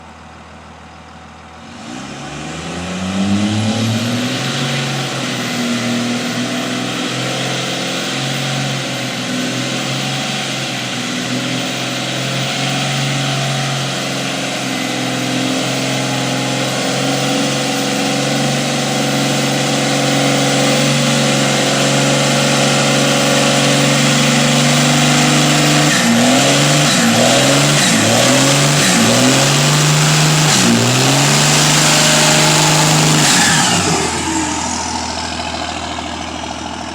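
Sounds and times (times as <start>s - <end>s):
diesel engine revving: 0.0s - 36.9s
high turbo whistle: 13.3s - 36.9s.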